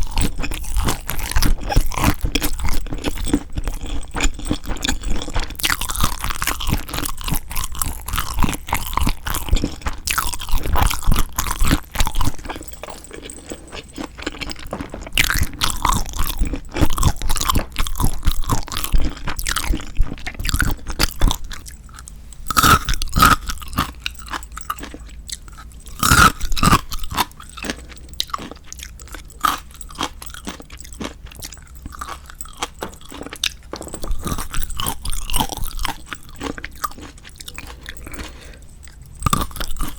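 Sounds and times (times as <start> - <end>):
wet chewing and crunching: 0.0 - 39.9.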